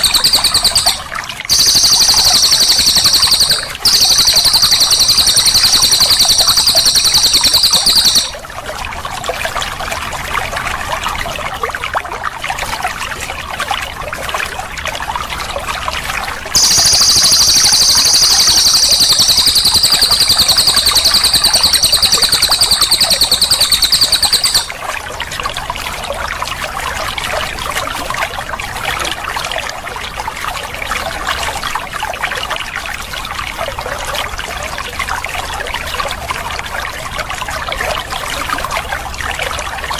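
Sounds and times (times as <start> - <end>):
songbird fast high trill: 0.0 - 8.4, 16.6 - 24.8
water trickling: 0.0 - 39.9.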